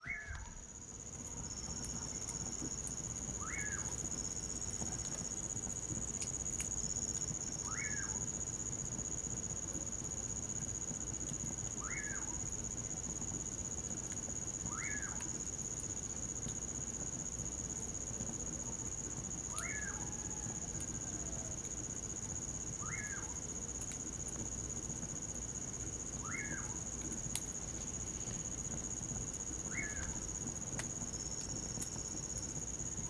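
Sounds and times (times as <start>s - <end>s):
bird whistled call: 0.0s - 0.5s, 29.7s - 30.1s
crickets trilling: 0.0s - 33.0s.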